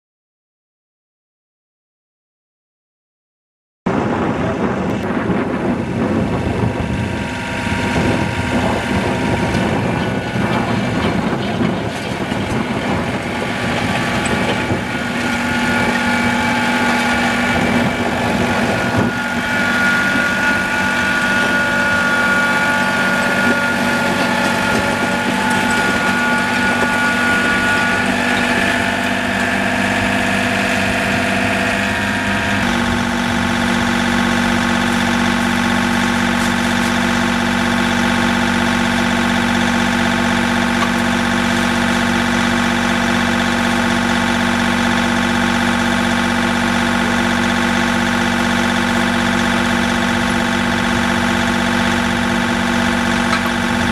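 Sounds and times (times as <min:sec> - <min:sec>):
tractor engine running: 0:03.9 - 0:53.9.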